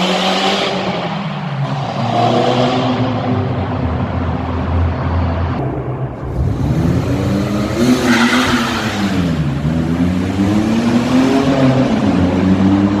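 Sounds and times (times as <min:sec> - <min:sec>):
car engine revving: 0:06.2 - 0:13.0.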